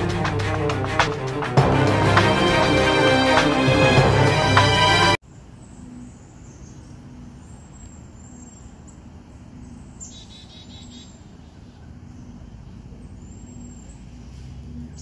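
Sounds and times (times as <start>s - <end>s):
low outdoor background noise: 5.2s - 15.0s
small birds chirping: 5.3s - 15.0s.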